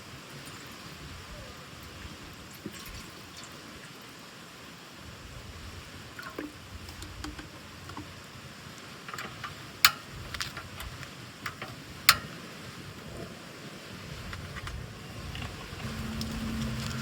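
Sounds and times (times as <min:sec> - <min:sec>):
low outdoor rumble: 0:14.1 - 0:17.0.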